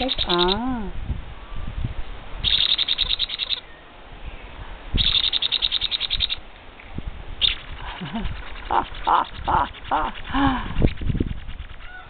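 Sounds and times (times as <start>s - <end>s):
parrot chick rasping begging call: 0.0s - 0.7s, 2.4s - 3.7s, 5.0s - 6.4s, 7.4s - 12.0s.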